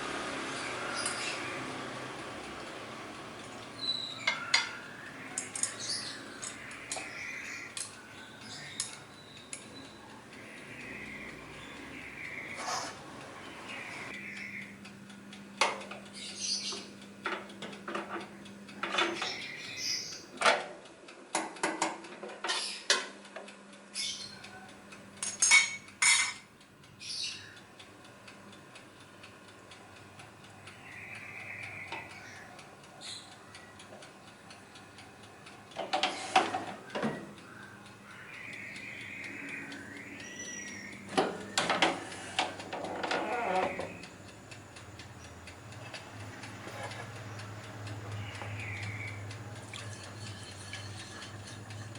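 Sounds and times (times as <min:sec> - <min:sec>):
steady low hum: 0:00.0 - 0:21.1, 0:23.7 - 0:51.9
dishes clinking and clattering: 0:25.2 - 0:26.4, 0:49.7 - 0:51.9.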